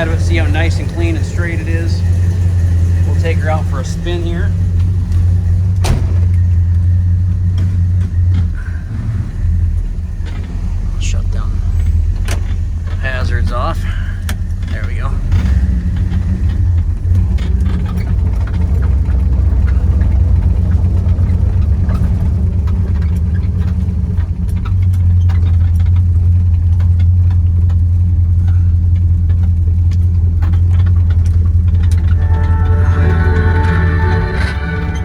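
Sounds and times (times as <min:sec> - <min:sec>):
car engine droning: 0:00.0 - 0:35.0
music: 0:31.9 - 0:35.0.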